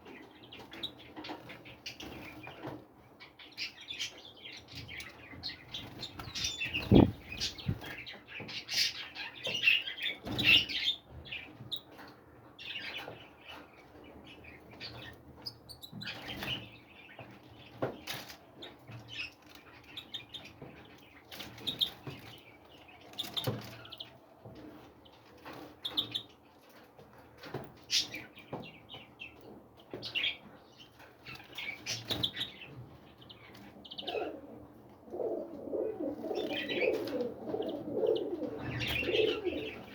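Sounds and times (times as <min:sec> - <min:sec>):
small birds chirping: 0:00.0 - 0:39.9
wings fluttering: 0:05.8 - 0:08.0
dove cooing: 0:34.0 - 0:39.9.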